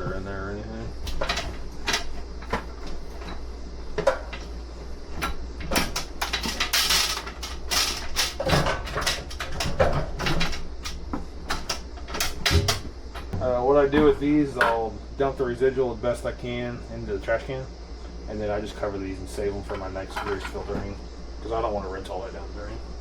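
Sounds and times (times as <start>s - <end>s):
steady low hum: 0.0s - 23.0s
objects knocking and clicking: 5.2s - 14.8s.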